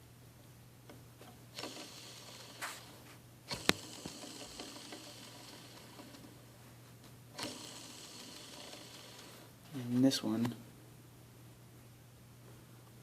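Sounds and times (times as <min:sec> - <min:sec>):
bearing turning hiss: 0:01.5 - 0:06.4, 0:07.3 - 0:10.0.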